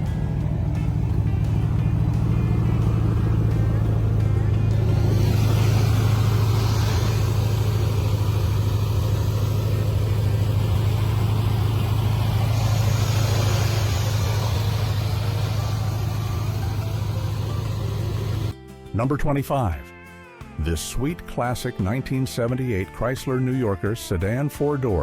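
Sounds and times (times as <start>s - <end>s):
car engine rumbling: 0.0s - 18.6s.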